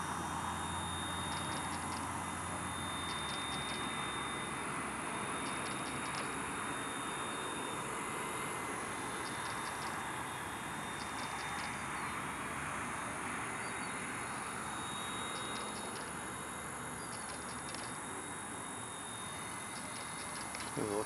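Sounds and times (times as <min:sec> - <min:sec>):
rc helicopter rotor whir: 0:00.0 - 0:21.0.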